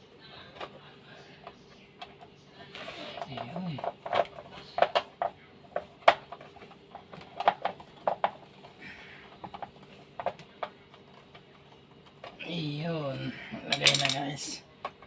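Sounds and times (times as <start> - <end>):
small parts and tool clicking: 13.6 - 15.0.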